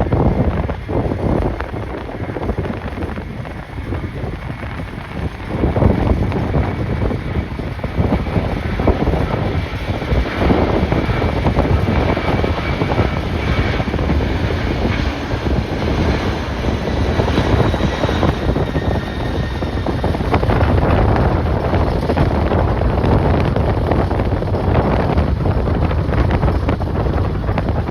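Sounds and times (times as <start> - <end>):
gusty wind buffeting microphone: 0.0 - 27.9
jet engines running: 0.0 - 27.9.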